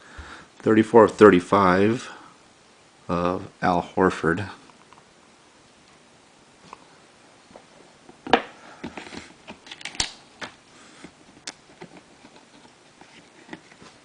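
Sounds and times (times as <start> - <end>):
cards and plastic holders handled: 8.1 - 14.0.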